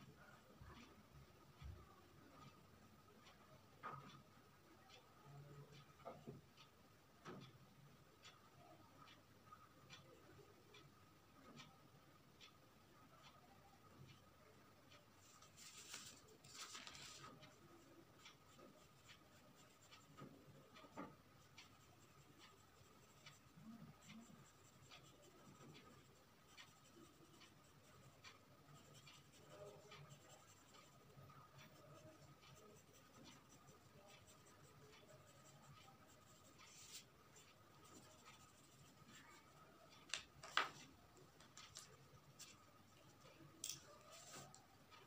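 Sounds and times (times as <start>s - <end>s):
drawing tool scratching on paper: 18.3s - 21.0s, 21.7s - 39.6s.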